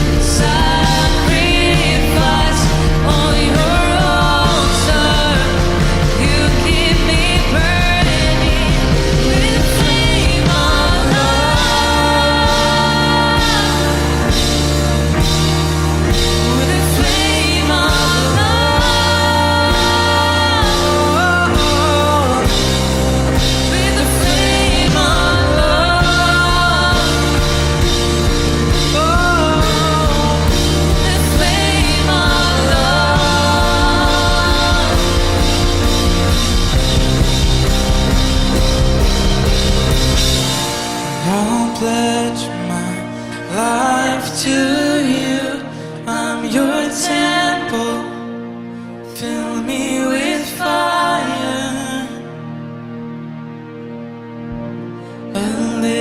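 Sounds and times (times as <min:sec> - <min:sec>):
drum kit: 0:00.0 - 0:42.1
rising vocal line: 0:00.0 - 0:48.3
bass: 0:00.0 - 0:56.0
sustained chords: 0:00.0 - 0:56.0
worship band playing: 0:00.0 - 0:56.0.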